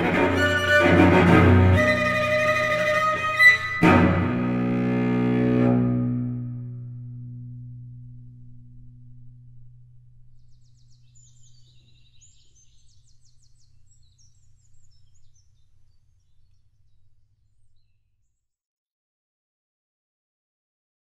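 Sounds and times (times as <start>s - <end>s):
cello note: 0.0s - 10.0s
birds singing and trilling: 10.4s - 18.0s.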